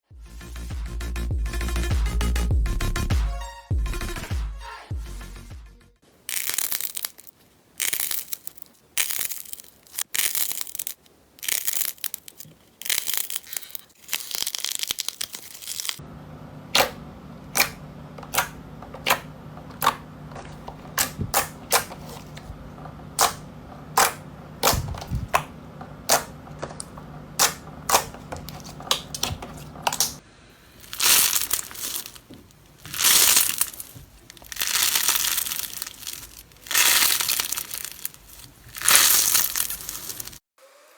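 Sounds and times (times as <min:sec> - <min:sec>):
slime crunching: 0:06.2 - 0:16.0, 0:17.6 - 0:40.4
slime popping: 0:06.3 - 0:16.0, 0:26.1 - 0:30.2, 0:30.8 - 0:40.4.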